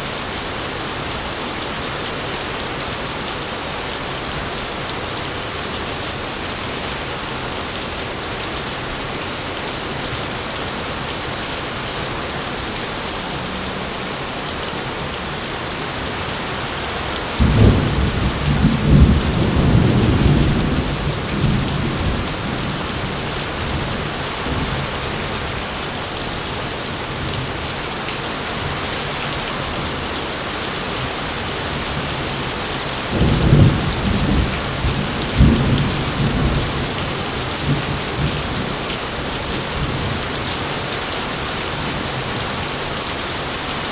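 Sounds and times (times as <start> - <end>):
heavy rain: 0.0 - 43.9
thunder rumbling: 17.4 - 25.0, 33.1 - 38.6.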